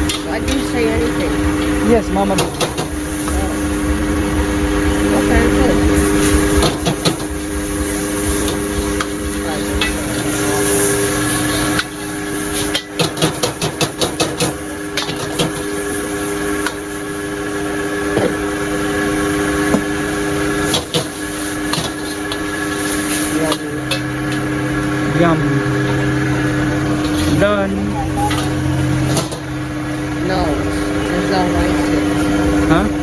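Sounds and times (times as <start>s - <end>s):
frying hiss: 0.0s - 33.0s
steady hum: 0.0s - 33.0s
crowd chatter: 9.2s - 12.1s, 23.2s - 33.0s.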